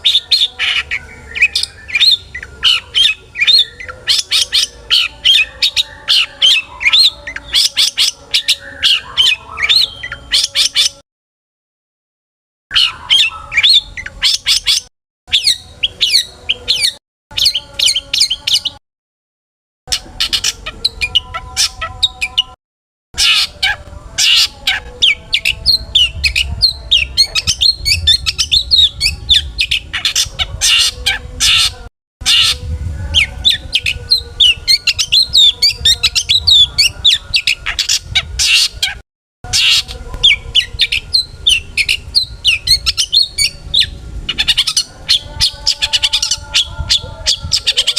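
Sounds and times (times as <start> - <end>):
shrike singing varied chirps: 12.7 - 18.8.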